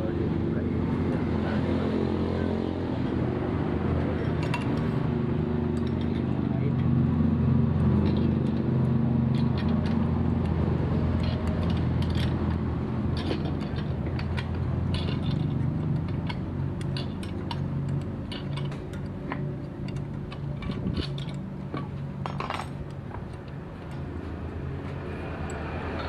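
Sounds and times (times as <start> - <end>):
metal tools clinking: 4.2 - 4.8, 9.3 - 23.0.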